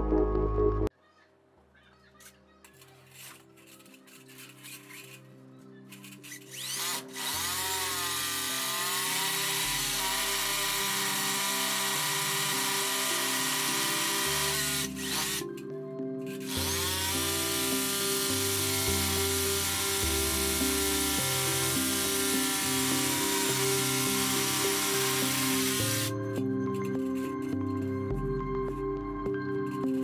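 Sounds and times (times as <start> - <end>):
background music: 0.0 - 1.5, 2.2 - 30.0
electric motor whining: 5.9 - 15.6, 16.3 - 27.6.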